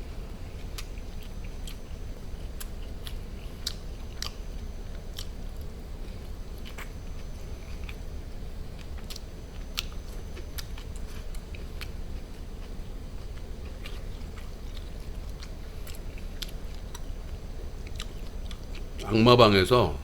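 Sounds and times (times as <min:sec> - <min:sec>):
man chewing meat: 0:00.0 - 0:19.2.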